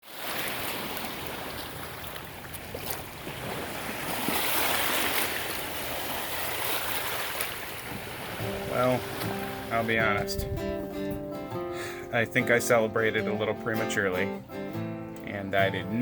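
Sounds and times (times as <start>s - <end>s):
water rushing past a boat: 0.0s - 14.4s
wind on microphone: 7.7s - 11.4s.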